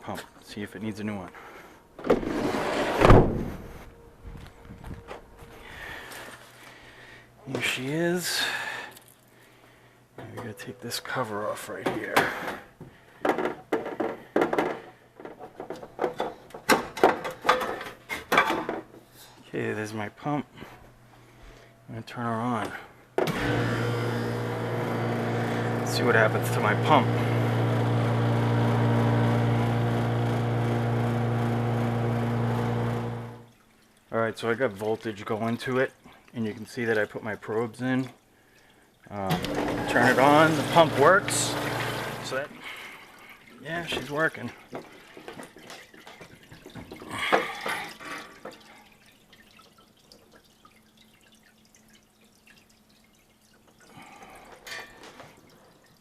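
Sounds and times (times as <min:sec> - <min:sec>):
faint steady pump hum: 0:03.5 - 0:56.0
ice machine motor hum: 0:23.3 - 0:33.5, 0:39.3 - 0:43.0
water trickling and dripping: 0:33.4 - 0:39.2, 0:42.6 - 0:56.0.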